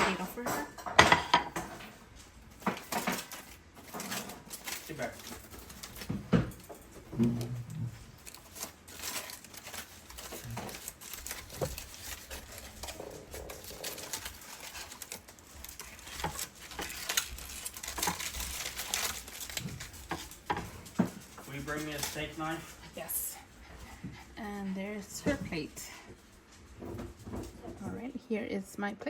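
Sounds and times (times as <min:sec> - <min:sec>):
dishes and utensils clinking: 0:00.0 - 0:22.6.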